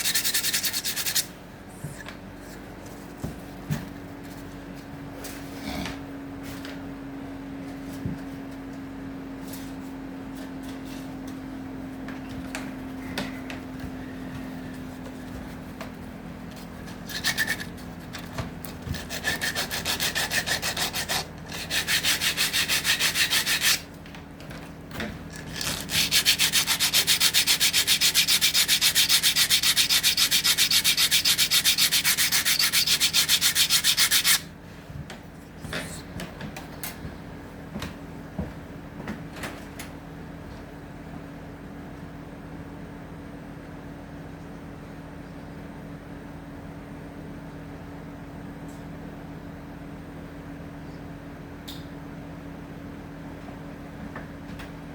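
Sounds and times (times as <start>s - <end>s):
hand sanding wood: 0.0s - 1.3s, 18.9s - 23.9s, 25.4s - 34.5s.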